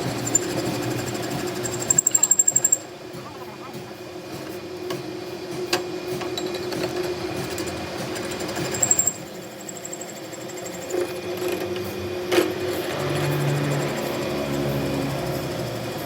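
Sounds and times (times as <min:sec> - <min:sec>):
high-pitched squeal: 0:00.0 - 0:04.2, 0:06.4 - 0:16.0
machine clattering and humming: 0:00.0 - 0:16.0.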